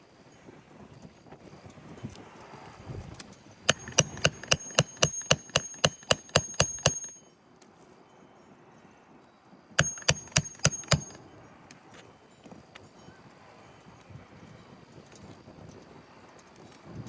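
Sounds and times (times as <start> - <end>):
hammer striking metal: 3.7 - 7.2, 9.8 - 11.2.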